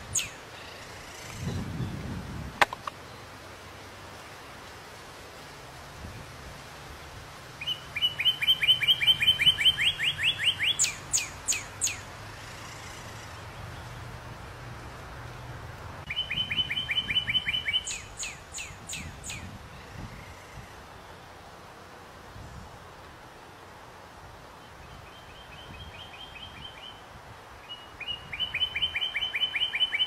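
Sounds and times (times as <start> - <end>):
songbird singing: 0.0 - 4.7, 7.5 - 21.6, 24.4 - 30.0
faint outdoor hiss: 0.0 - 30.0.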